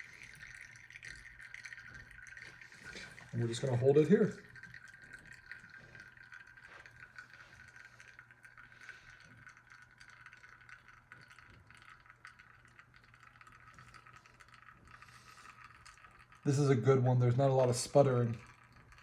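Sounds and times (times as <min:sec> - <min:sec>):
espresso running into cup: 0:00.0 - 0:19.0.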